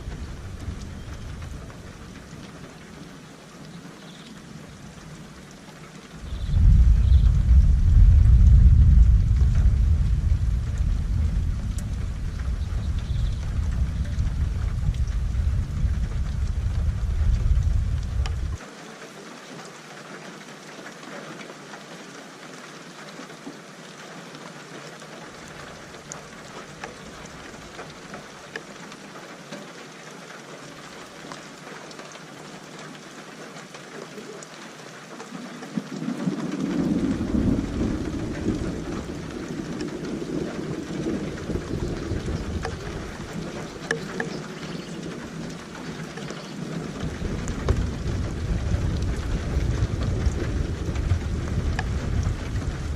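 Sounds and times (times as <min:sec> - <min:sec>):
thunder rumbling: 0:00.0 - 0:02.6, 0:06.2 - 0:18.6, 0:35.7 - 0:52.9
steady rain falling: 0:00.0 - 0:52.9.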